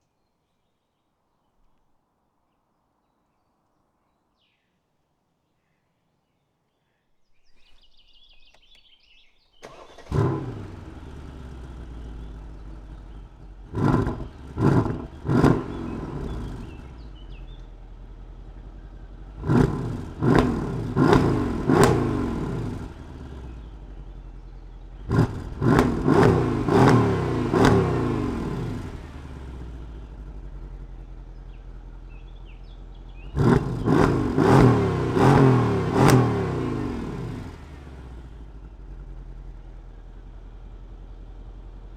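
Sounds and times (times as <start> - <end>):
car engine starting: 9.6 - 41.9
engine idling and revving: 9.6 - 41.9.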